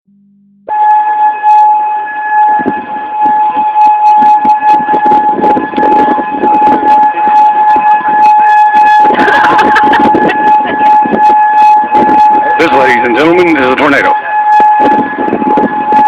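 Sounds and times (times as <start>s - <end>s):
warning siren steady tone: 0.0s - 16.0s
microphone crackle: 2.6s - 13.4s.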